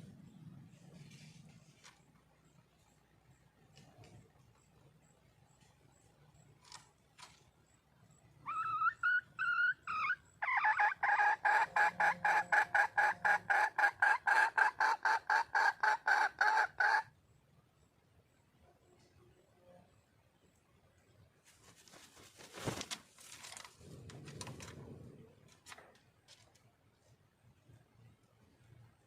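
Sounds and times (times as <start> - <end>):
hen calling: 8.4 - 17.0
hen clucking: 8.5 - 17.1.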